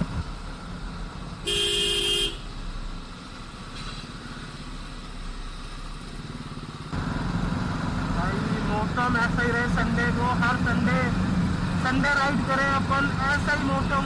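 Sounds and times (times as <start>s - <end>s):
traffic noise: 0.0s - 14.0s
wind: 0.0s - 14.0s
vehicle horn: 1.4s - 2.5s
motorcycle engine running: 6.1s - 14.0s.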